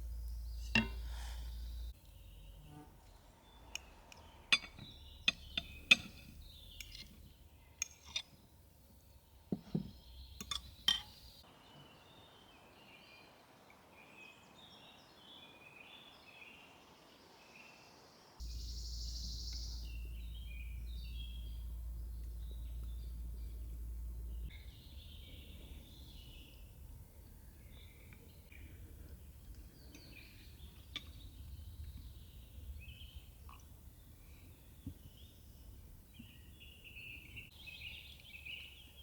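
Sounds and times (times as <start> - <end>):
low hum: 0.0 - 6.8, 18.4 - 27.4
small birds chirping: 0.0 - 39.0
sharp clinks and knocks: 4.5 - 8.4.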